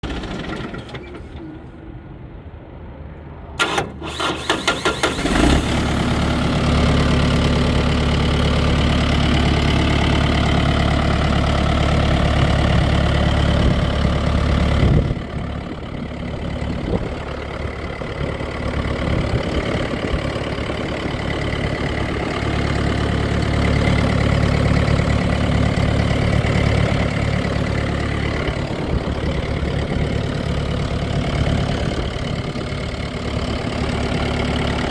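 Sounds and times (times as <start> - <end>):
starter cranking engine: 0.0 - 1.4, 3.6 - 15.6
tractor diesel engine idling: 0.0 - 1.9, 3.6 - 34.9.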